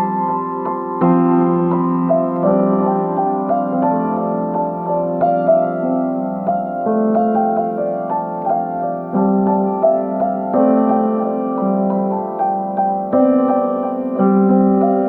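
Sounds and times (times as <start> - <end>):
solo piano playing: 0.0 - 15.0.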